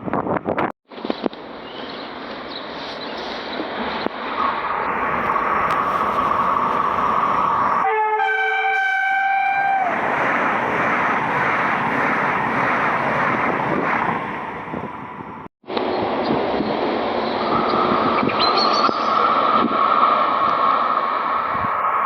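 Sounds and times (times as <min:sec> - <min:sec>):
high-speed train passing: 0:00.9 - 0:18.1, 0:19.0 - 0:22.0
two-tone train horn: 0:07.8 - 0:10.0.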